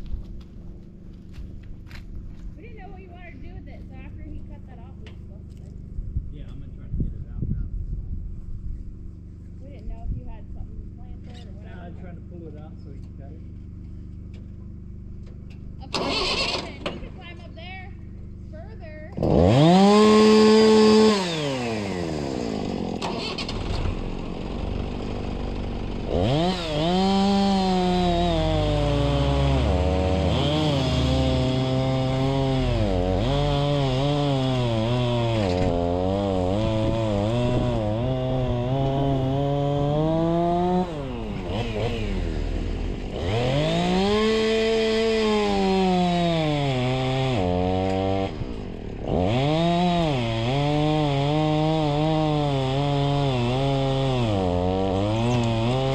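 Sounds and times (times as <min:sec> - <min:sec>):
chainsaw cutting log: 0:13.7 - 0:55.9
chainsaw revving: 0:15.8 - 0:55.9.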